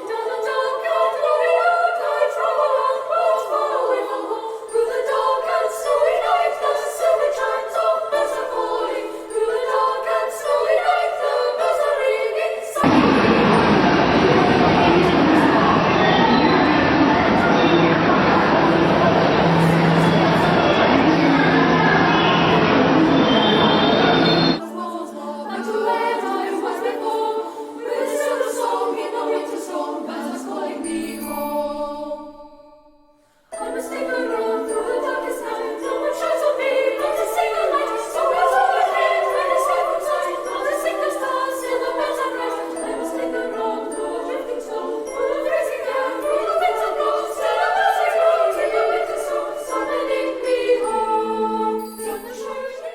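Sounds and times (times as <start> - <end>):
choir singing unaccompanied: 0.0 - 52.9
loud dense music: 12.8 - 24.6
low drone: 12.8 - 24.6.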